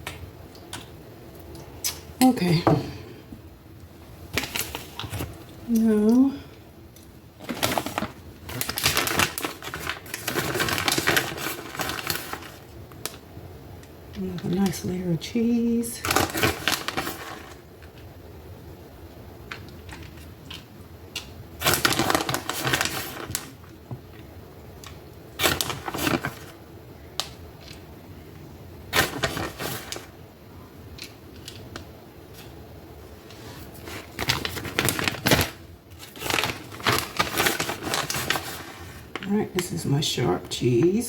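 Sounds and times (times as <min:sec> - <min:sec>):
plastic packaging crinkling: 0:04.3 - 0:06.0, 0:07.0 - 0:13.2, 0:16.0 - 0:18.0, 0:19.5 - 0:24.2, 0:24.8 - 0:26.6, 0:28.9 - 0:30.2, 0:33.3 - 0:39.7.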